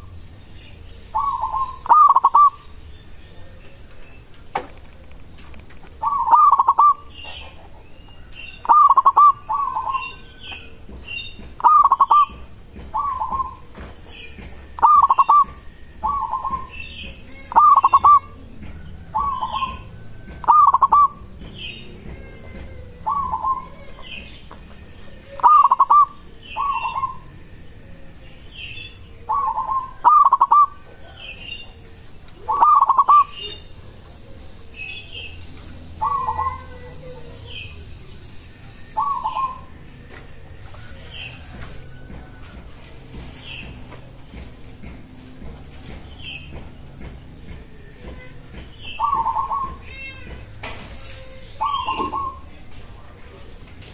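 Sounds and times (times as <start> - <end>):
high chirping notes: 0.0 - 3.3, 6.0 - 7.5, 8.5 - 22.1, 23.0 - 41.4
dove cooing: 1.1 - 2.7, 5.9 - 24.5, 25.1 - 27.2, 29.2 - 35.4, 36.0 - 37.8, 39.0 - 39.7, 48.9 - 49.8, 51.6 - 52.6.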